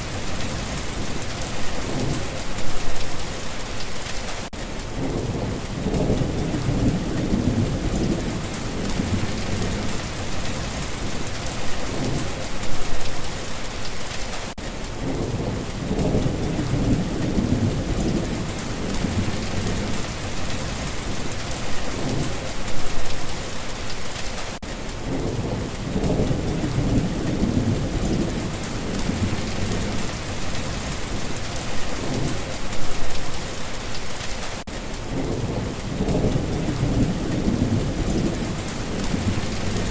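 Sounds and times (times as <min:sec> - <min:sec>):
thunder rumbles: 0:00.0 - 0:03.3, 0:04.8 - 0:13.3, 0:14.9 - 0:23.6, 0:25.0 - 0:34.3, 0:35.0 - 0:39.9
steady rain: 0:00.0 - 0:39.9.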